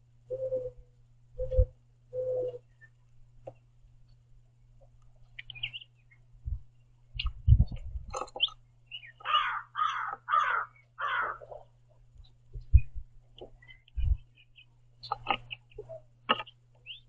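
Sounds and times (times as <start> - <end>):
thin bird chirps: 5.2 - 7.5, 8.1 - 10.0, 12.2 - 17.0
bird cawing: 9.1 - 11.6.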